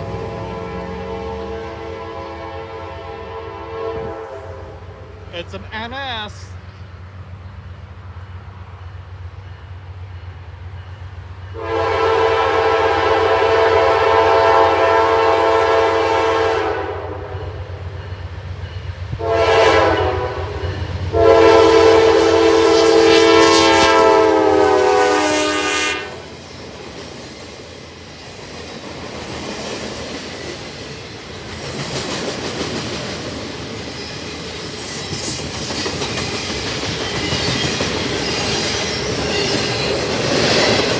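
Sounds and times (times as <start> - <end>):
train rumbling by: 0.0 - 40.9
locomotive chime horn blasts: 0.3 - 4.9, 11.5 - 17.6, 19.2 - 26.2.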